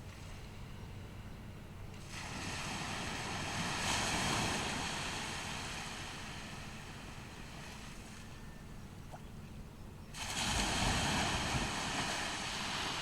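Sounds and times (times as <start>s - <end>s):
ocean wave breaking: 2.0s - 8.3s, 10.2s - 13.0s.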